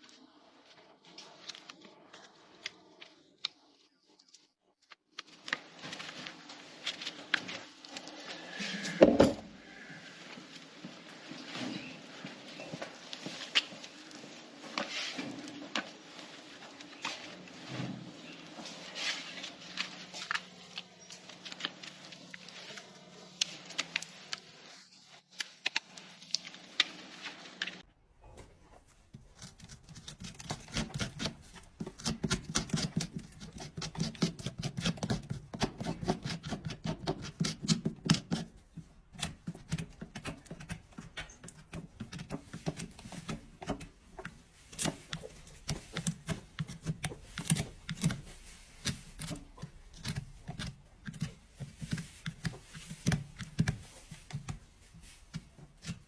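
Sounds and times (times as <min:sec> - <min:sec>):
hoof trimming tools scraping: 0:29.1 - 0:56.0.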